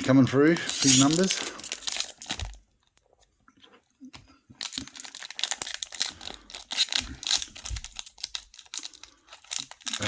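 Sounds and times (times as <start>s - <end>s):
wrapper crinkling and tearing: 0.0s - 2.6s, 4.6s - 10.0s.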